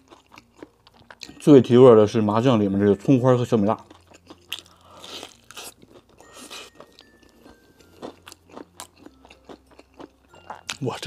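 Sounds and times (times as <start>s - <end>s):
chewing fried chicken: 0.0s - 1.4s, 3.7s - 11.0s.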